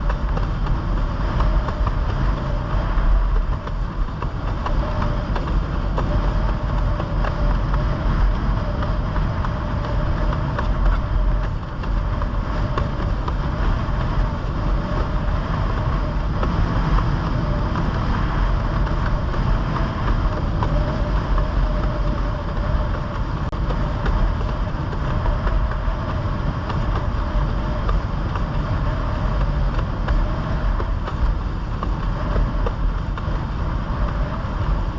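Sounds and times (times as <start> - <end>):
motorboat engine running: 0.0 - 34.9
water noise: 0.0 - 34.9
wind buffeting microphone: 0.0 - 34.9.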